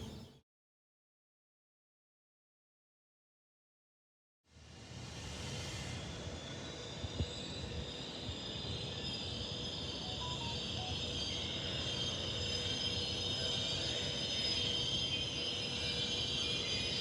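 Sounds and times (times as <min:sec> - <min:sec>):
train rolling: 0:04.8 - 0:17.0
high steady whine: 0:10.1 - 0:11.2.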